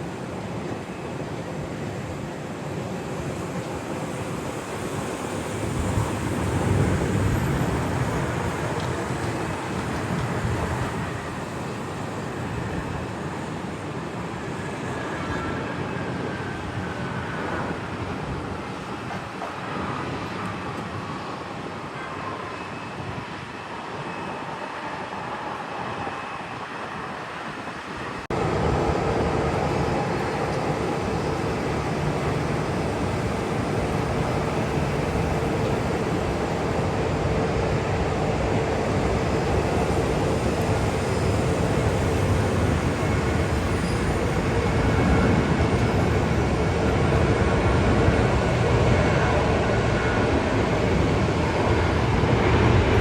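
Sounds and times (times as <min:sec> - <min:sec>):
jet engine rushing: 0:23.6 - 0:53.0.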